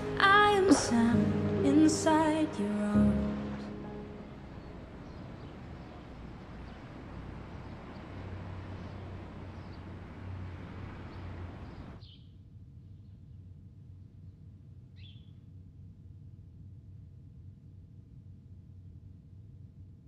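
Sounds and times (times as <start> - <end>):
steady noisy hiss: 0.0 - 12.0
bird chirps: 3.5 - 12.2.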